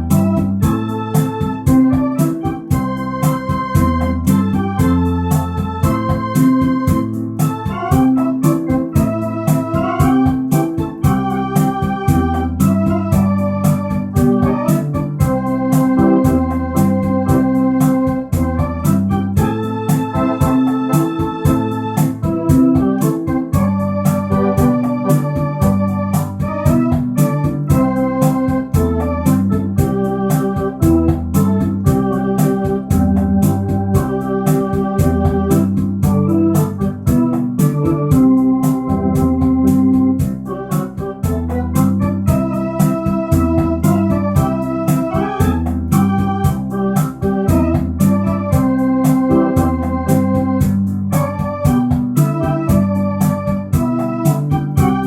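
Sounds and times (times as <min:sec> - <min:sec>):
drum machine beat: 0:00.0 - 0:55.0
electronic organ playing rumba: 0:00.0 - 0:55.0.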